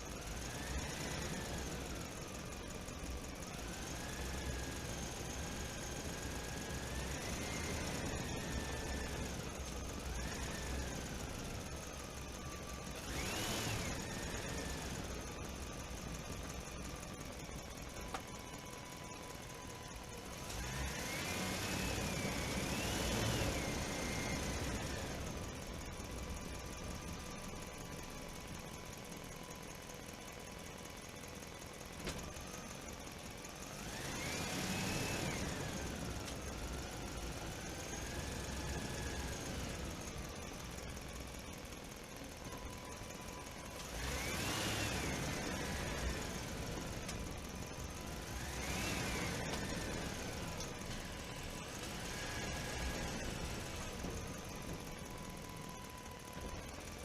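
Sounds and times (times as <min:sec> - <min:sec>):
motor whine revving: 0:12.2 - 0:16.8, 0:33.6 - 0:40.5, 0:42.4 - 0:56.6.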